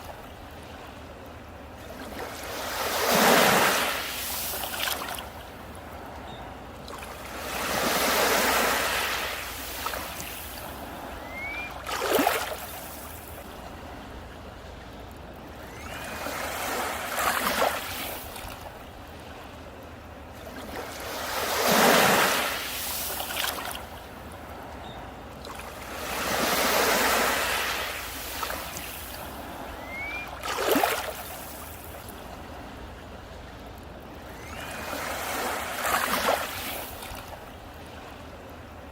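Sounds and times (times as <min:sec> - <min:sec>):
sea waves breaking on beach: 0:00.0 - 0:14.6, 0:15.3 - 0:38.9.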